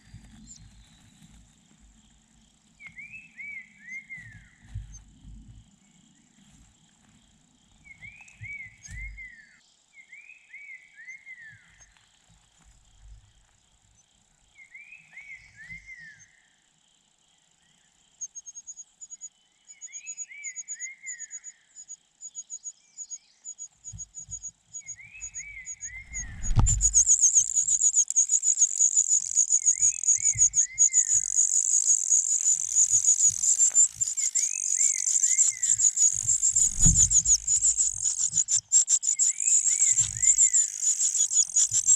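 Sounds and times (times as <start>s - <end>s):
nestlings chirping rapidly: 25.2s - 41.9s.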